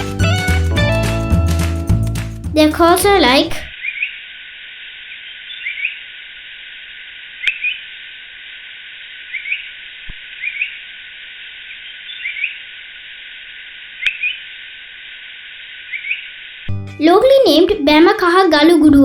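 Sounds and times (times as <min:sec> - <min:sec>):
steady hiss: 0:04.0 - 0:16.7
bulbul calling: 0:05.5 - 0:06.0, 0:07.4 - 0:07.8, 0:09.3 - 0:09.7, 0:10.4 - 0:10.8, 0:11.8 - 0:12.6, 0:14.0 - 0:14.4, 0:15.9 - 0:16.3.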